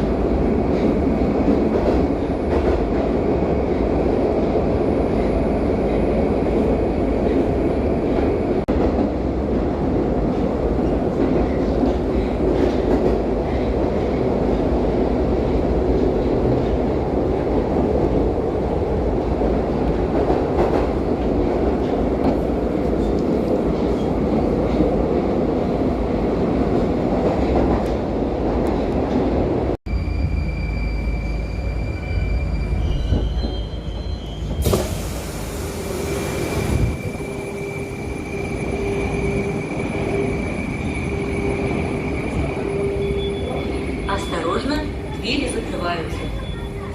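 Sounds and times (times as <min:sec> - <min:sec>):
train wheels rumbling on rails: 0:00.0 - 0:30.5
wheel squeal: 0:29.9 - 0:34.6.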